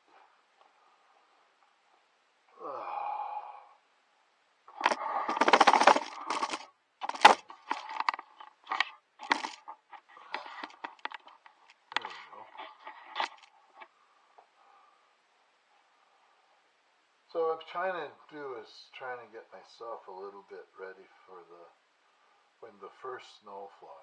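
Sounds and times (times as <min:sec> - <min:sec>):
hard objects clattering and scraping: 0:04.7 - 0:13.5.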